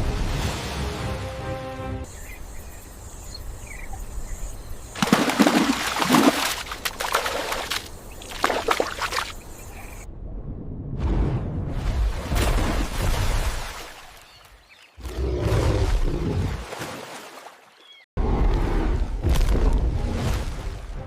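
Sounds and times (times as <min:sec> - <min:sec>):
faint bird chirps: 0:02.1 - 0:05.0
water splashing: 0:04.8 - 0:10.0, 0:11.7 - 0:18.0.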